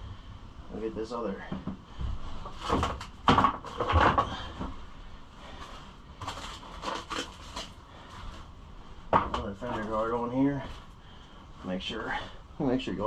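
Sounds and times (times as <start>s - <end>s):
plastic panels knocking and rattling: 2.6s - 4.7s, 9.1s - 9.6s.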